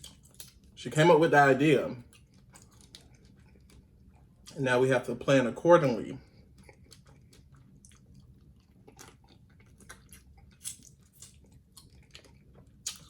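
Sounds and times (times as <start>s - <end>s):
mouth chewing food: 2.0s - 4.7s, 6.2s - 13.0s.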